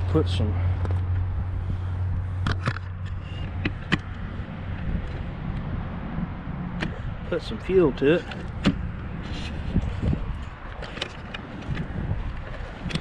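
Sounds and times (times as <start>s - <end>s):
sharp clicks and knocks: 2.4s - 5.7s, 6.7s - 7.0s, 8.2s - 13.0s.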